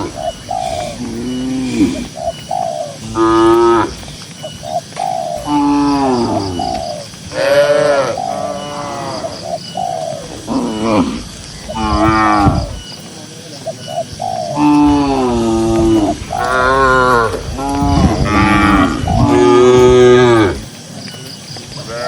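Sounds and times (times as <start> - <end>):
cattle mooing: 10.4 - 12.8, 14.6 - 20.6.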